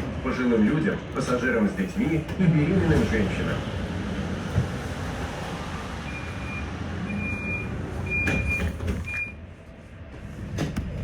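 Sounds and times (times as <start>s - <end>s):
tram rumble: 0.0s - 11.0s
door warning beeps: 6.1s - 9.4s.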